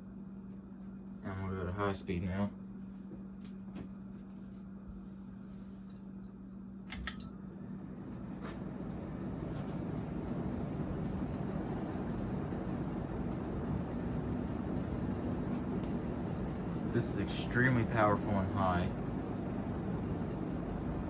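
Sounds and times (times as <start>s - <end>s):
ceiling fan whooshing: 0.0s - 21.0s
fan switch clicks: 6.2s - 7.4s.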